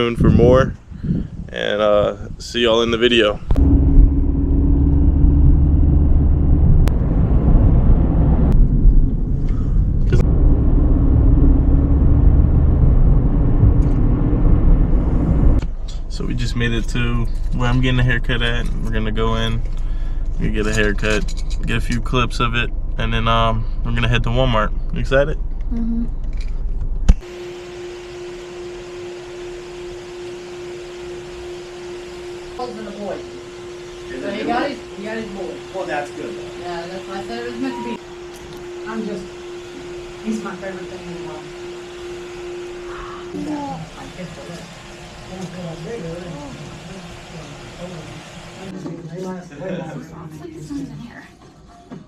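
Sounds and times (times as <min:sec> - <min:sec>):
car engine and road rumble: 0:00.0 - 0:32.6
faint hum: 0:02.0 - 0:48.7.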